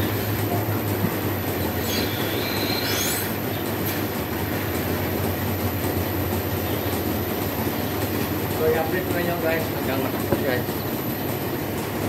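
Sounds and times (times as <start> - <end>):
milking machinery humming: 0.0 - 12.0
high squeal: 1.8 - 3.3.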